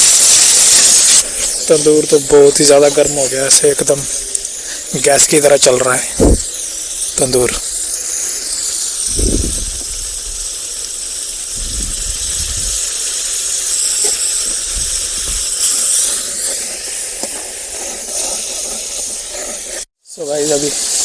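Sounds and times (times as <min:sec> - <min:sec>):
fire hissing: 0:00.0 - 0:21.0
low rumbles: 0:06.1 - 0:06.6, 0:09.2 - 0:10.4, 0:11.5 - 0:12.8.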